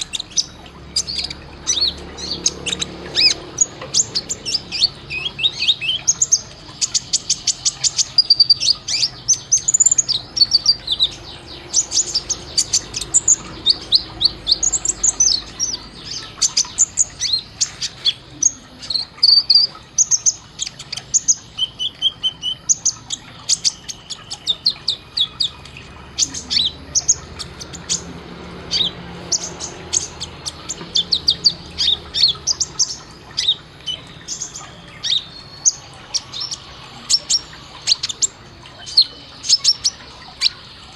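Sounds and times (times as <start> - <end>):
bird singing rapid chirps and trills: 0.0 - 40.9.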